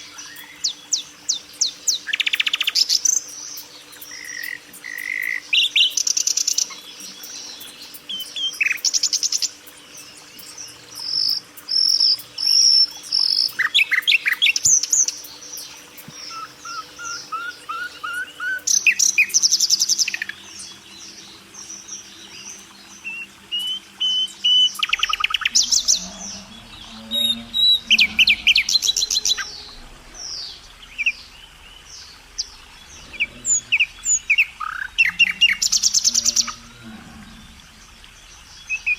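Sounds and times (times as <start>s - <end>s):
faint steady hum: 0.0s - 38.9s
small birds chirping and chattering: 0.0s - 38.9s.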